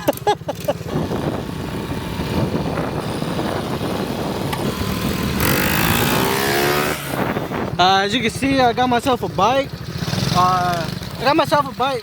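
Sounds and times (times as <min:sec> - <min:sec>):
dirt bike engine revving: 0:00.0 - 0:12.0
wind noise: 0:00.8 - 0:09.0.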